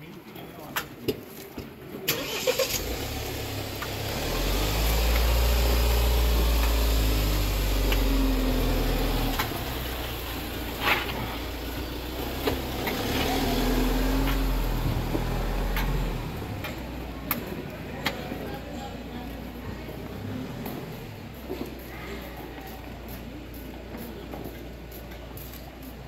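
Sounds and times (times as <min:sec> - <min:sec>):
car engine droning: 0:02.1 - 0:22.5.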